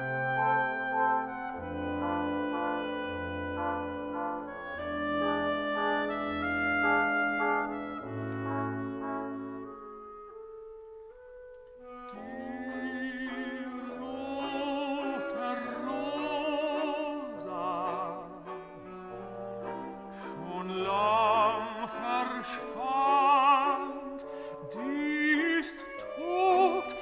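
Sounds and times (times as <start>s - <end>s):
orchestral accompaniment: 0.0s - 27.0s
operatic voice singing: 12.1s - 18.8s, 20.0s - 27.0s.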